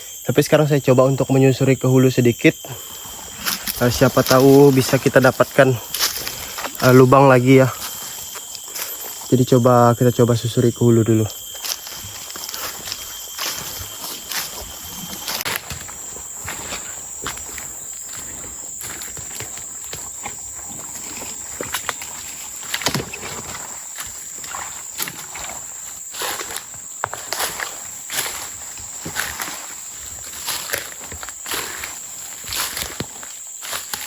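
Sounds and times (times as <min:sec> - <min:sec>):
high-pitched insect drone: 0:00.0 - 0:34.0
footsteps crunching and rustling: 0:02.4 - 0:34.0.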